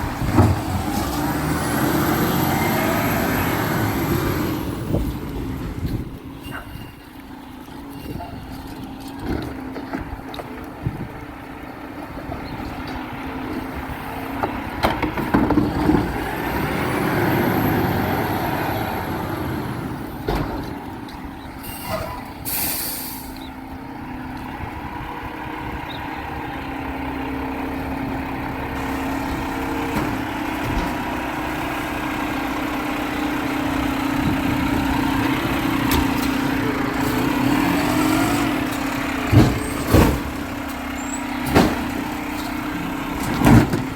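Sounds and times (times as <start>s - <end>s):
garbage truck engine running: 0.0s - 43.9s
air brake hiss: 21.6s - 23.5s.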